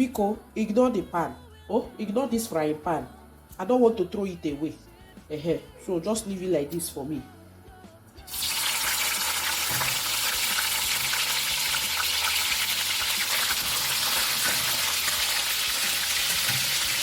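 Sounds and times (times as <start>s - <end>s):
meat sizzling in hot oil: 8.3s - 17.0s.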